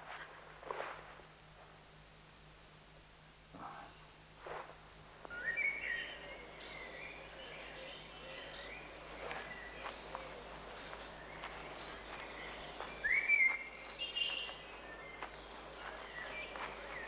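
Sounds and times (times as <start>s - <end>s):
outdoor background hiss: 0.0s - 17.0s
small birds singing: 5.2s - 17.0s.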